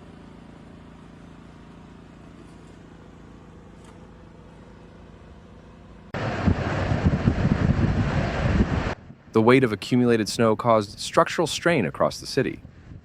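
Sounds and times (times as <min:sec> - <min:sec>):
faint low vehicle engine hum: 0:00.0 - 0:13.0
wind buffeting microphone: 0:06.2 - 0:09.4, 0:12.6 - 0:13.0.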